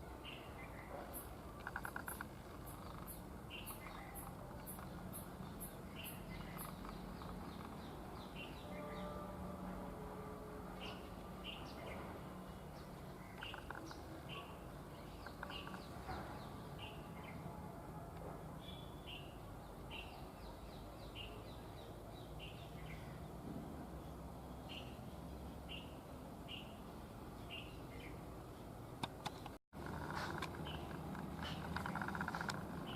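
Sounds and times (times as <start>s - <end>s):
small bird chirping: 0.2s - 8.9s, 13.2s - 17.4s.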